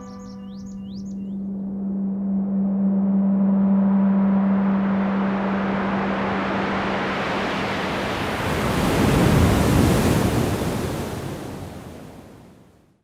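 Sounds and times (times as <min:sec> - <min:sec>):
low hum: 0:00.0 - 0:08.7
steady rushing noise: 0:01.7 - 0:11.7.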